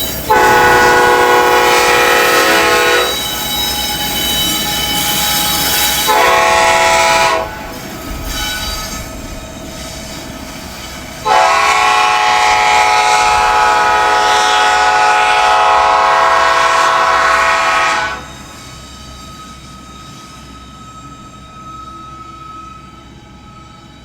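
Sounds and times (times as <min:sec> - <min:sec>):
train rumble: 0:00.0 - 0:24.0
locomotive air horn: 0:00.3 - 0:03.4, 0:04.6 - 0:07.8, 0:11.2 - 0:18.6.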